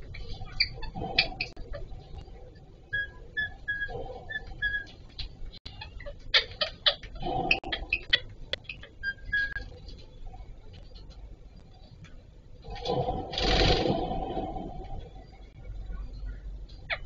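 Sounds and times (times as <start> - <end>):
parakeets chirping: 0.0 - 9.8, 15.2 - 17.0
parakeet clicking chatter: 3.0 - 9.7.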